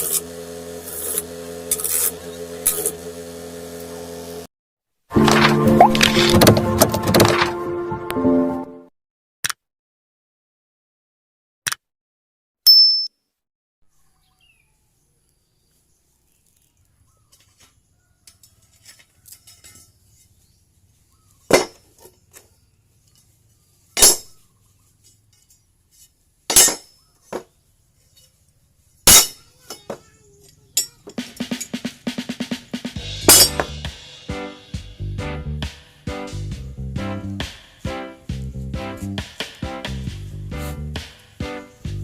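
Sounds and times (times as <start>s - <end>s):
short high ding: 12.7s - 13.2s.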